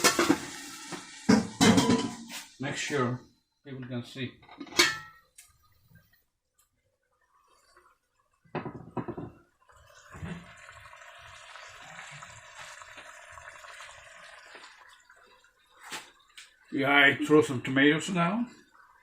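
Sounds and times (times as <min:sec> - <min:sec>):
chicken sizzling in oil: 0:00.0 - 0:01.9, 0:09.8 - 0:18.2
cooking pot clattering: 0:01.3 - 0:02.3, 0:04.4 - 0:05.2, 0:08.5 - 0:09.4.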